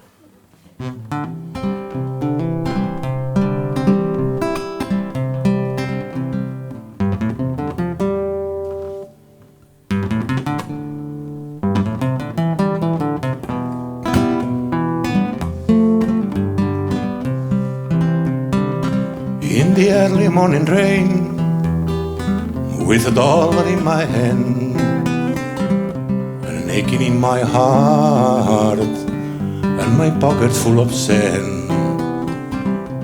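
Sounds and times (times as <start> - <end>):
acoustic guitar picking: 0.8 - 33.0.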